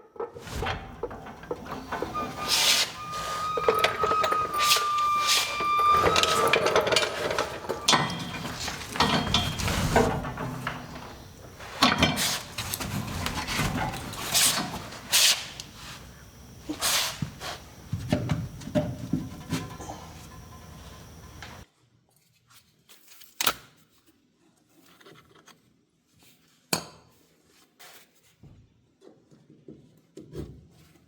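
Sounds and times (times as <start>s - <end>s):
tools knocking and clanking: 0.4s - 21.6s
thin high tone: 0.5s - 21.6s.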